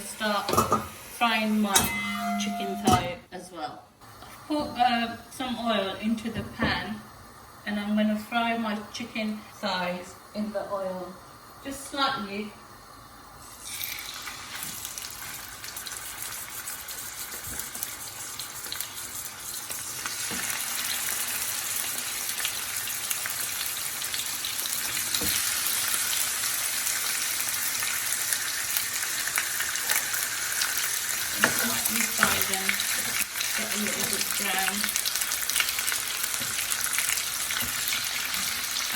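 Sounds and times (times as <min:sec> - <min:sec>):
chicken sizzling in hot oil: 0:11.3 - 0:38.9.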